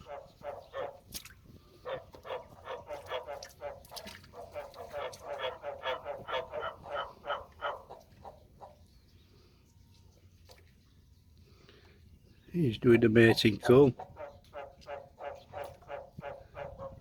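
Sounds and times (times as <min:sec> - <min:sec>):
frog croaking: 0:01.9 - 0:08.0, 0:14.1 - 0:17.0.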